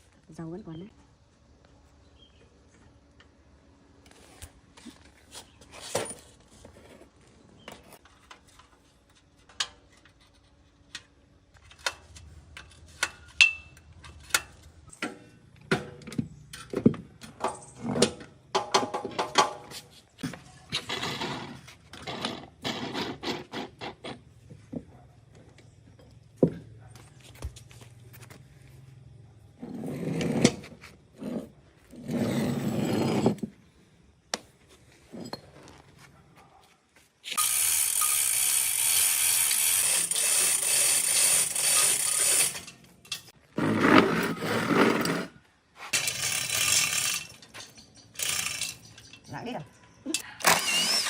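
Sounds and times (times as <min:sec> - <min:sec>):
metal scraping: 0:41.1 - 0:50.0.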